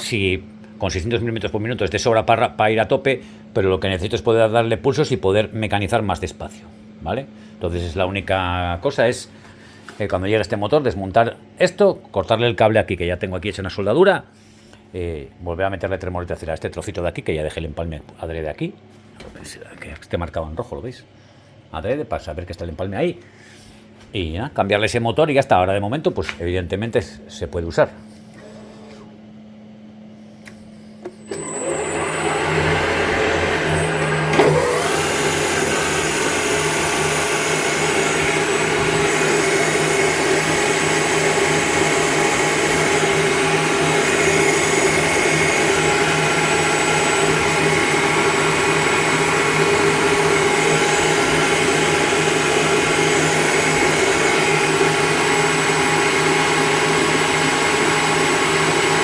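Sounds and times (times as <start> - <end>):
lathe motor humming: 31.0 - 59.0.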